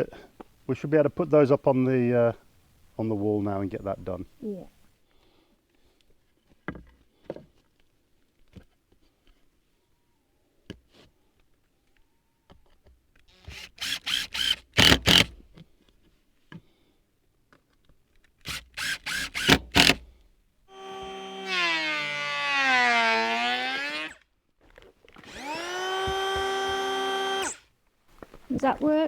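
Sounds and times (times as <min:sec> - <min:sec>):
power drill driving screws: 0:13.3 - 0:15.4, 0:18.4 - 0:20.1, 0:20.7 - 0:24.2, 0:25.2 - 0:27.7.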